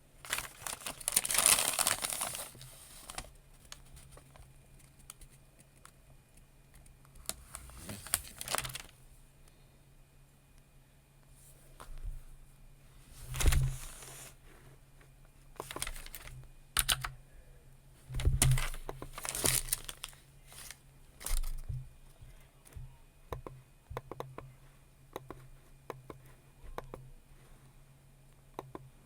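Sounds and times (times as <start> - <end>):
paper crinkling: 0.2 - 5.9, 7.2 - 9.0, 13.2 - 14.4, 15.6 - 16.4, 18.4 - 21.6.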